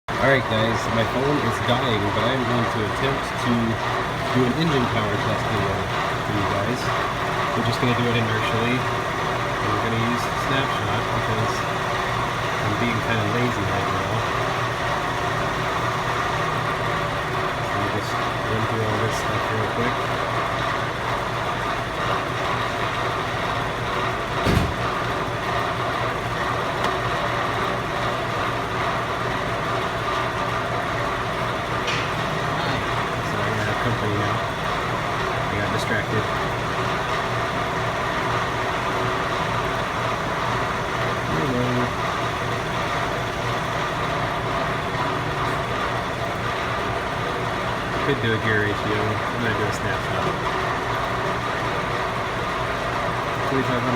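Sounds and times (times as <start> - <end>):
truck engine idling: 0.1 - 53.9
short knock: 24.4 - 25.0.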